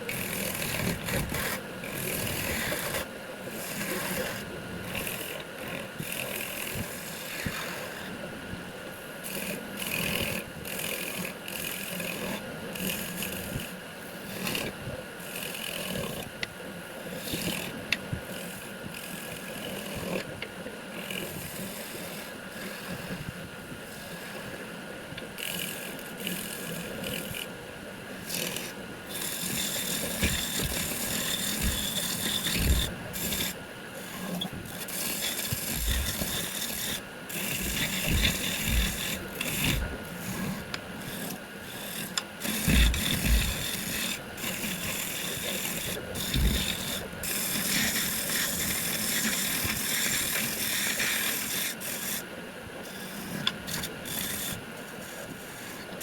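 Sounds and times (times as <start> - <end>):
lathe tool scraping wood: 0.0 - 8.0, 28.2 - 56.0.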